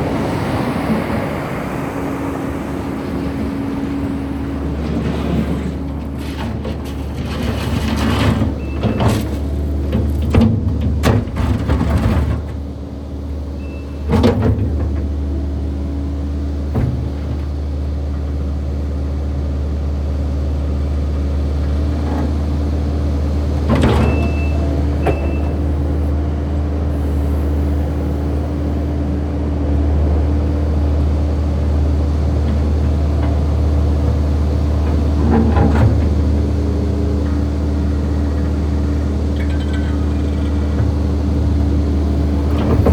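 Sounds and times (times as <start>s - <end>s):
diesel engine running under load: 0.0s - 42.9s
sharp metallic clanks: 39.3s - 41.0s.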